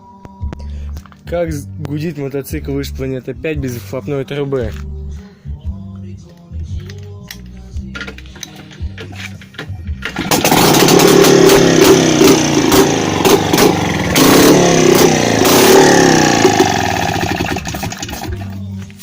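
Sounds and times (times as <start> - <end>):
two-stroke motorcycle engine revving: 10.0 - 18.6.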